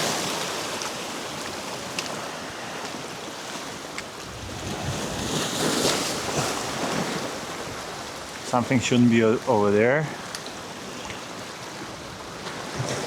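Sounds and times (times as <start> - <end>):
surf washing against rocks: 0.0 - 13.0
wind buffeting microphone: 4.2 - 9.1.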